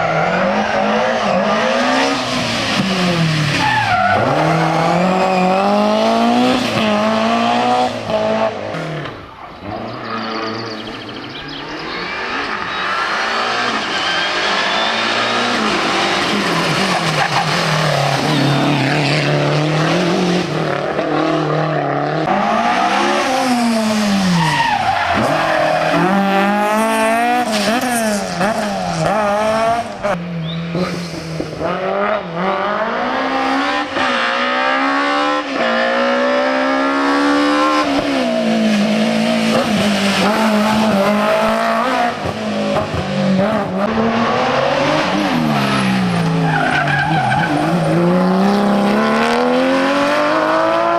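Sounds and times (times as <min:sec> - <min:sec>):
rally car engine revving: 0:00.0 - 0:50.9.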